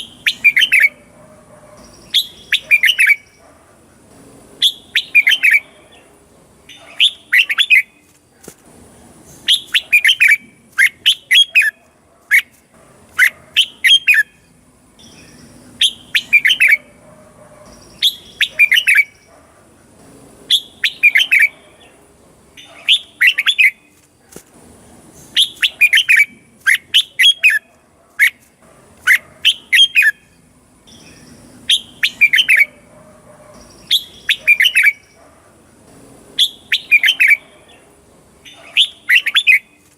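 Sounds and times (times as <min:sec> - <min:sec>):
bird singing whistled notes: 0:00.0 - 0:01.0, 0:01.8 - 0:03.4, 0:04.6 - 0:05.8, 0:09.4 - 0:12.5, 0:13.2 - 0:16.9, 0:17.7 - 0:19.3, 0:20.5 - 0:21.6, 0:25.3 - 0:27.7, 0:29.1 - 0:32.8, 0:33.6 - 0:35.2, 0:36.4 - 0:37.5, 0:38.4 - 0:39.8.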